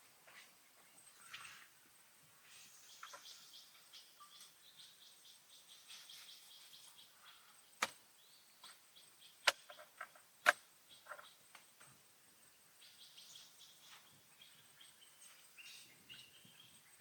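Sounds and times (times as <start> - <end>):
faint bird chirps: 0.3 - 17.0
insect calls: 1.0 - 17.0.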